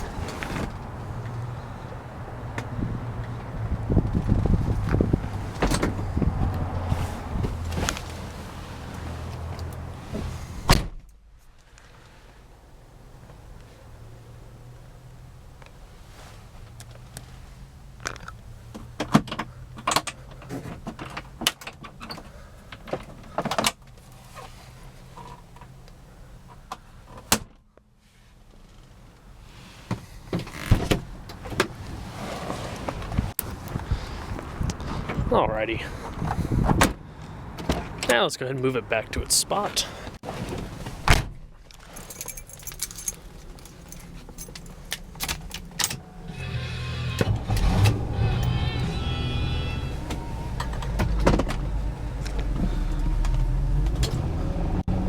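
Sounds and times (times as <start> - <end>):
car door shutting: 10.1 - 11.2, 40.3 - 41.4, 45.2 - 54.3
key ring jingling: 41.9 - 45.8.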